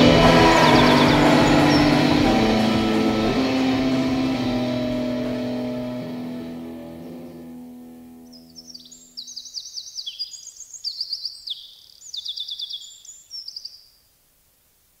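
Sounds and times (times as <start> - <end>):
held music chord: 0.0 - 9.1
songbird trilling and chirping: 8.2 - 14.1.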